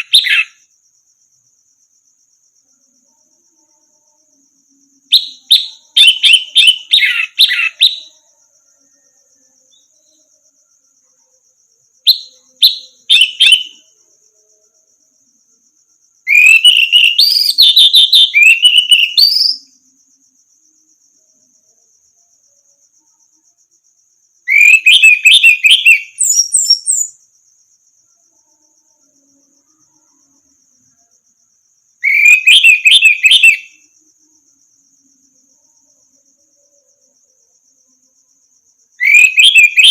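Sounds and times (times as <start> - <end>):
thrush singing whistled phrases: 0.0 - 0.6, 5.1 - 8.1, 12.1 - 13.8, 16.3 - 19.7, 24.5 - 27.2, 32.0 - 33.8, 39.0 - 39.9
high-pitched cricket trill: 0.0 - 39.9.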